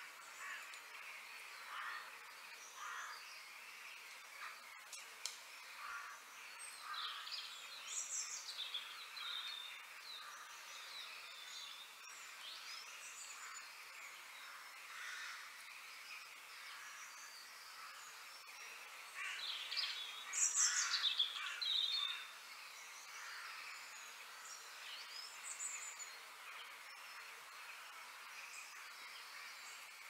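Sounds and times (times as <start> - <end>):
outdoor background hiss: 0.0 - 30.0
birds chirping and calling: 19.0 - 27.1.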